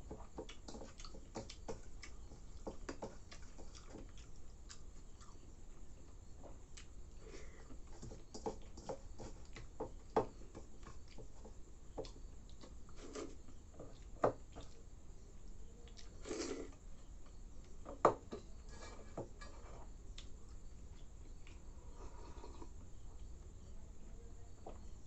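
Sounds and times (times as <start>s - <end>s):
person chewing and lip-smacking: 0.2s - 5.4s.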